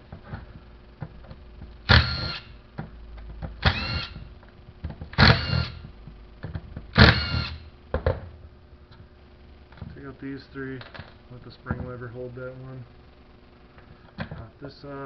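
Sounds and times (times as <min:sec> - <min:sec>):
small electric motor whirring: 0:01.9 - 0:02.5, 0:03.6 - 0:04.2, 0:05.2 - 0:05.8, 0:07.0 - 0:07.6.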